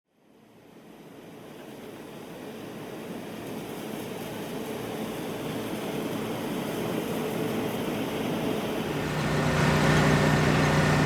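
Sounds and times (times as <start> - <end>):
machinery rumbling: 8.8 - 11.0.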